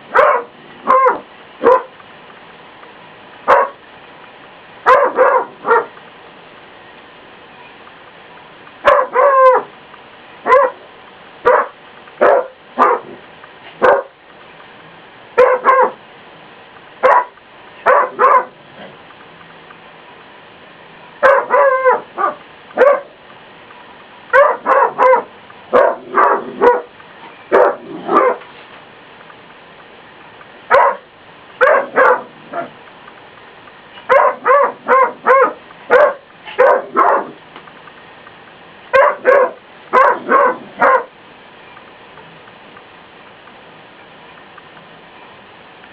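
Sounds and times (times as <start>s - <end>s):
dog barking: 0.1s - 1.9s, 3.5s - 3.8s, 4.9s - 5.9s, 8.8s - 9.7s, 10.5s - 10.8s, 11.4s - 13.2s, 13.8s - 14.2s, 15.4s - 16.0s, 17.0s - 18.6s, 21.2s - 23.1s, 24.3s - 26.9s, 27.5s - 28.4s, 30.7s - 32.8s, 34.1s - 37.4s, 38.9s - 41.1s.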